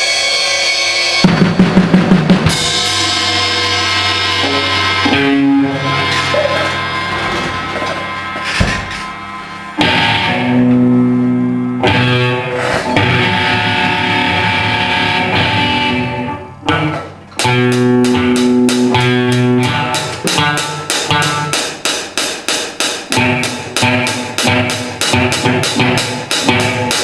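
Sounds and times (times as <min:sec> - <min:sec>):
guitar chords and strums: 0:01.2 - 0:27.0.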